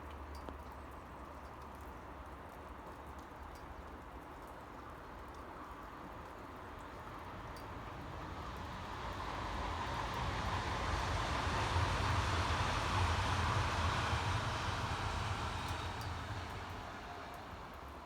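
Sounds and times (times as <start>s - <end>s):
vehicle passing by: 7.0s - 18.0s.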